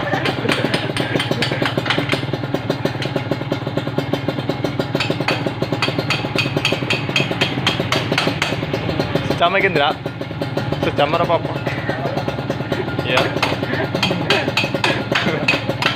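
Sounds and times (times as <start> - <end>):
two-stroke engine idling: 0.0 - 15.9.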